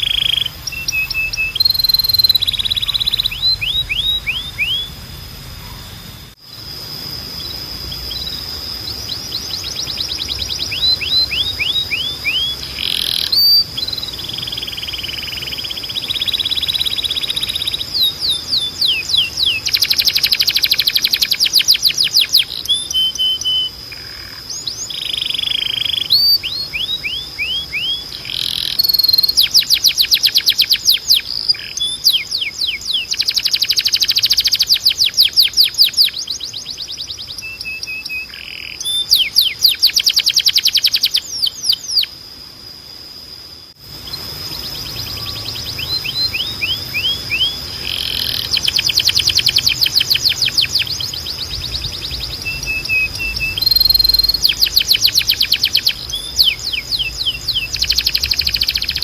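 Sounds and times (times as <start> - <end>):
steady high tone: 0.0 - 21.9
canary singing trills: 0.0 - 42.8, 43.6 - 59.0.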